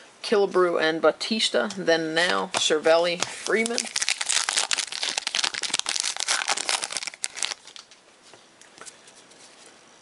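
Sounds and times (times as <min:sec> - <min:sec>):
wrapper crinkling and tearing: 0:03.2 - 0:08.0.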